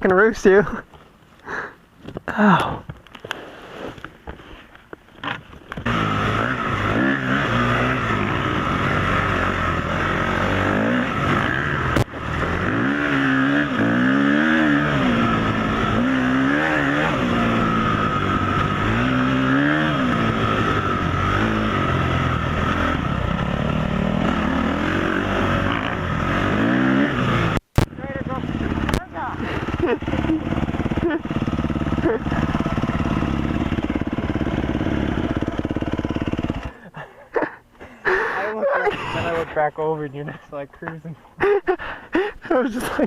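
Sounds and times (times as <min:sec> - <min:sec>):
motorcycle engine revving: 0:05.2 - 0:37.0.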